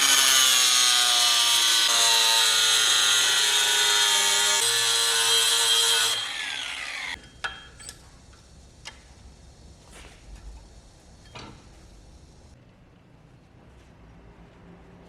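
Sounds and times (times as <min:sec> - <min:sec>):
power tool motor whining: 0:05.5 - 0:07.2.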